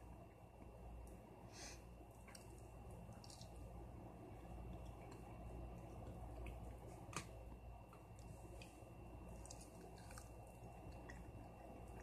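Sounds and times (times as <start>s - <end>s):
chewing and biting chicken: 9.3s - 12.0s.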